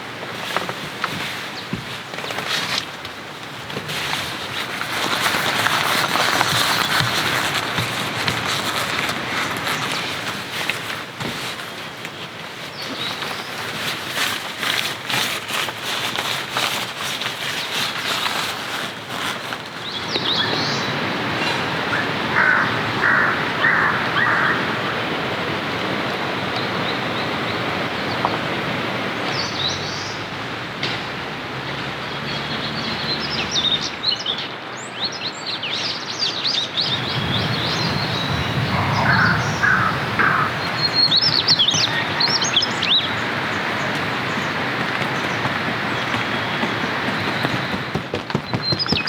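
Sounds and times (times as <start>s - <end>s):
steady rain falling: 0.0s - 32.1s, 36.8s - 48.4s
birds chirping: 19.8s - 25.3s, 32.0s - 49.0s
low pulsed bird calls: 36.8s - 45.4s.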